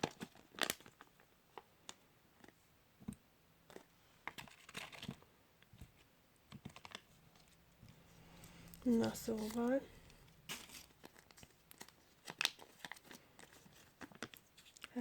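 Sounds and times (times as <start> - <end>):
wrapper crinkling: 0.0 - 2.6, 6.6 - 15.0.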